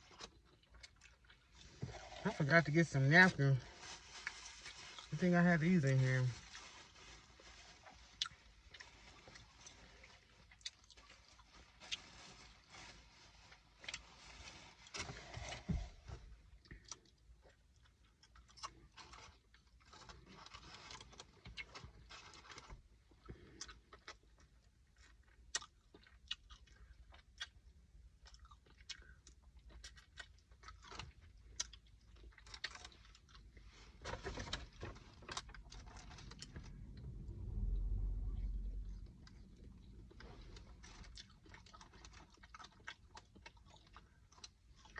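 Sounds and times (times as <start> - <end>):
chewing and biting food: 16.7 - 22.6, 23.2 - 33.6, 39.2 - 44.9.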